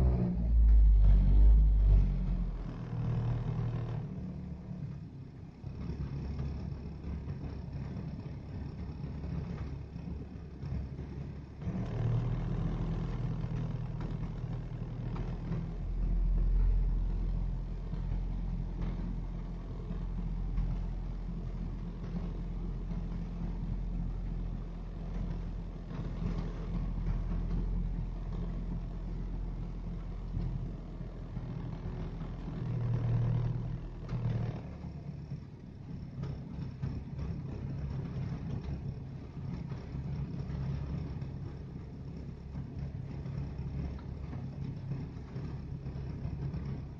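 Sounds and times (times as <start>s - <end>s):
car engine running rough: 0.0s - 46.9s.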